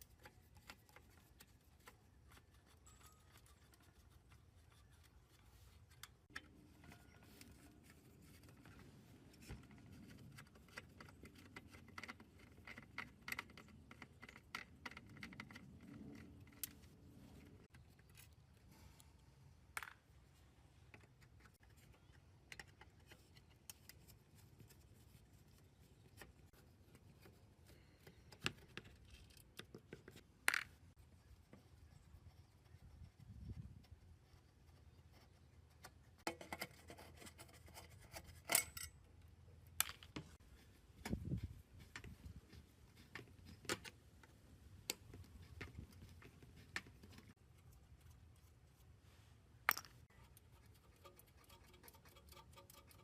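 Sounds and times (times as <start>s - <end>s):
small tools clicking and scraping: 0.0s - 19.2s, 33.8s - 49.0s, 49.7s - 53.0s.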